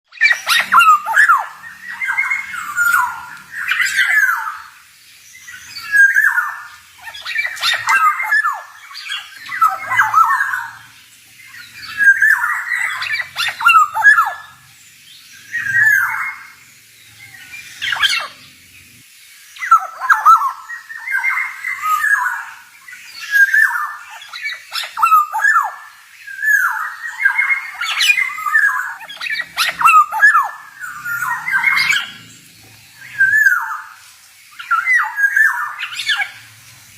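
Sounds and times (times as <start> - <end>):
oriole singing whistled phrases: 5.4 - 10.9, 11.5 - 14.6, 19.6 - 32.2.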